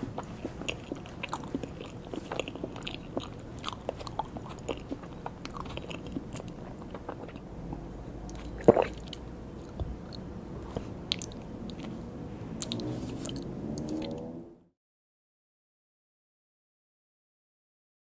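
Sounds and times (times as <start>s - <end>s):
chewing cake: 0.0s - 14.2s
wet mouth sounds and clicks: 0.2s - 14.3s.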